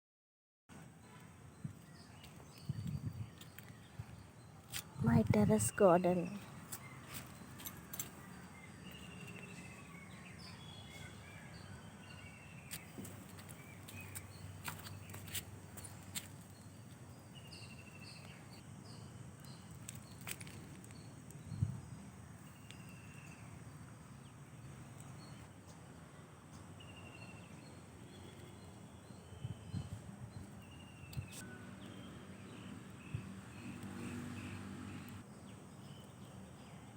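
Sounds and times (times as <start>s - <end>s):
bird chirps: 1.0s - 21.6s.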